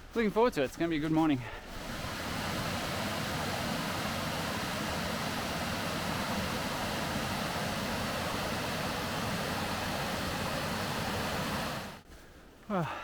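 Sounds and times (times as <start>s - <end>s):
running water rushing: 0.6s - 12.0s.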